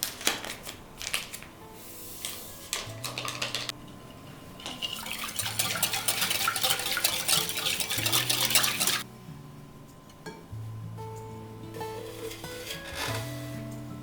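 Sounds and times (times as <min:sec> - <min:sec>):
utensils clattering against dishes: 0:02.6 - 0:09.1.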